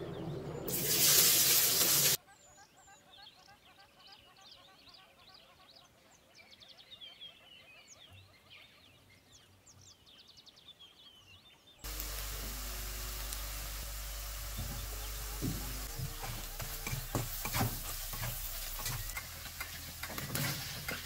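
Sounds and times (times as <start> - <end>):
vegetables sizzling in oil: 0.7 - 2.2, 11.8 - 21.0
faint bird chirping: 2.2 - 21.0.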